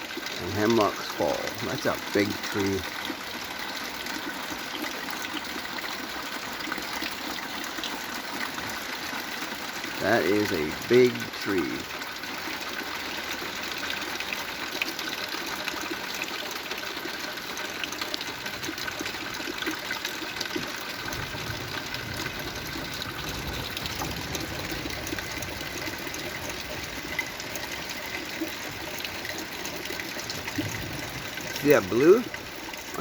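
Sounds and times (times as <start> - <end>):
heavy rain: 10.0 - 11.5, 20.9 - 28.8, 29.9 - 33.0.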